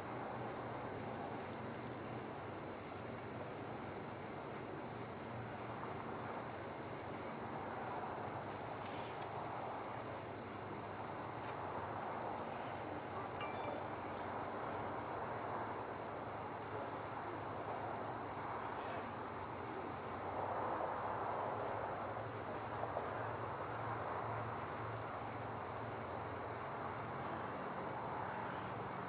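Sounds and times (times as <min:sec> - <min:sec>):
outdoor background noise: 0:00.0 - 0:29.0
high-pitched whine: 0:04.6 - 0:24.9.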